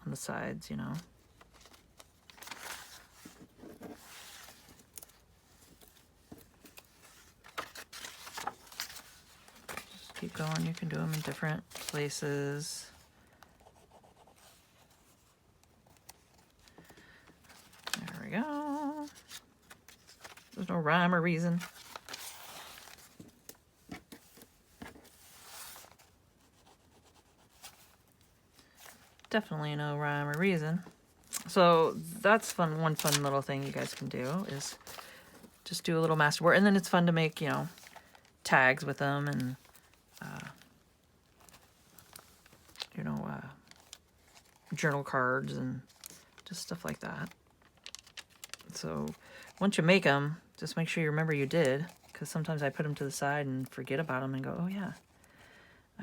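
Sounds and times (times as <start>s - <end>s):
paper rustling: 0.9s - 49.7s, 51.4s - 52.9s.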